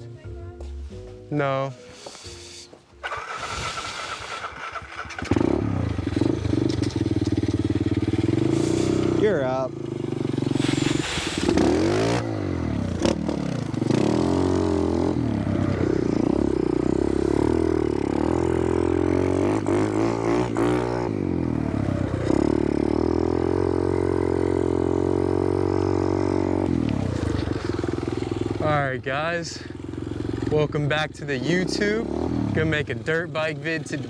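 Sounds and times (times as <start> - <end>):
pit bike engine revving: 3.0 - 28.8, 29.6 - 34.0.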